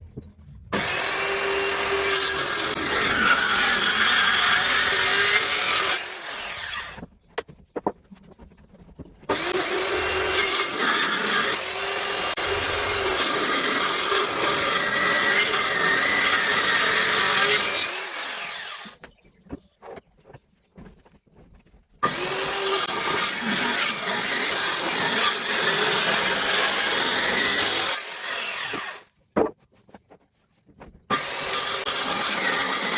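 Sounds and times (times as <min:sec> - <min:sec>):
circular saw cutting wood: 0:00.7 - 0:07.1, 0:09.3 - 0:19.0, 0:22.0 - 0:29.1, 0:31.1 - 0:32.9.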